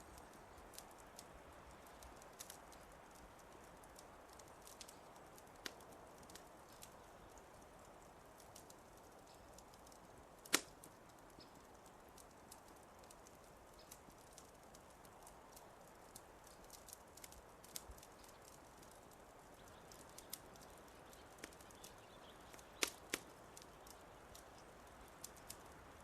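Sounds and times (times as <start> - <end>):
fireplace fire crackling: 0.0 - 26.0
sharp pop of fire: 10.4 - 10.8.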